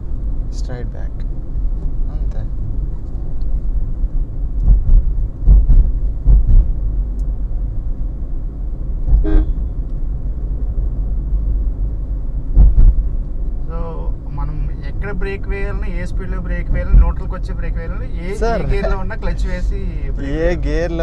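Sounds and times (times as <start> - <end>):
car driving rumble: 0.0 - 21.0
low thumps: 3.7 - 7.4, 8.8 - 13.6
short car horn toot: 9.2 - 9.6.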